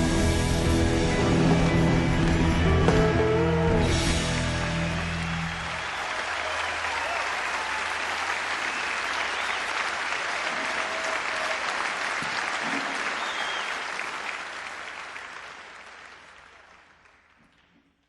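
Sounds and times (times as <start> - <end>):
audience applauding: 3.9 - 17.7.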